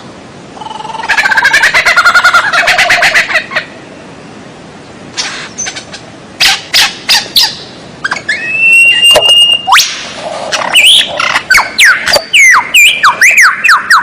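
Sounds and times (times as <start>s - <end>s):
rapid chattering bird trill: 5.2s - 14.0s.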